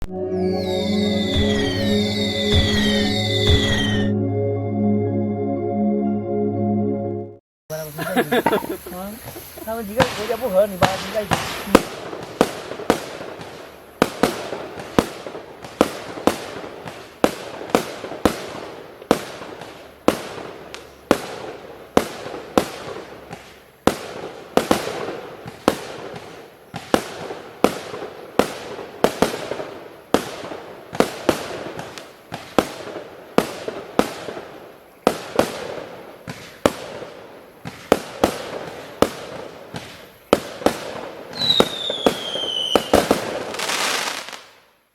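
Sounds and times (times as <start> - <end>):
falling firework whistle: 0.0 - 4.2, 41.3 - 44.4
firework launch reports: 7.7 - 15.0
firework hiss and crackle: 7.7 - 44.7.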